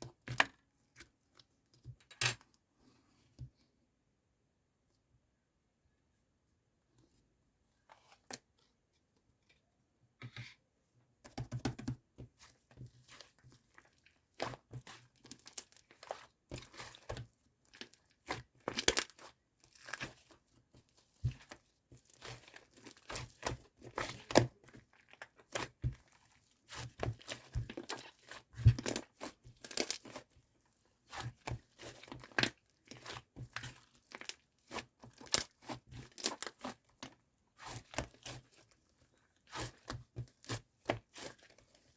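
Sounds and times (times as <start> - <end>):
crinkling and tearing handling noises: 21.0 - 41.9.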